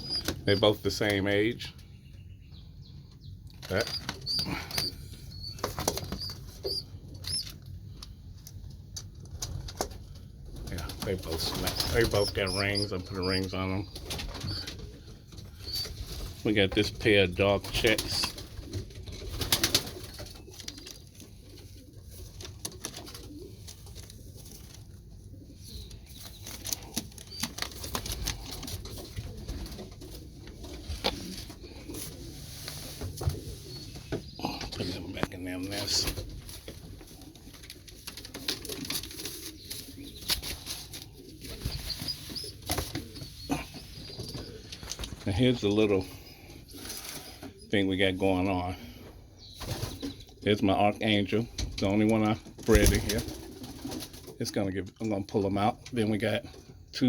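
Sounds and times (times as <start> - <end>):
clicks and rustles of birds: 0.0 - 1.9, 3.1 - 47.7, 48.8 - 57.0
young pigeons squeaking: 0.0 - 56.9
pigeon wings flapping: 9.3 - 12.4, 17.6 - 21.6, 26.3 - 32.3, 35.8 - 43.5, 52.6 - 54.4.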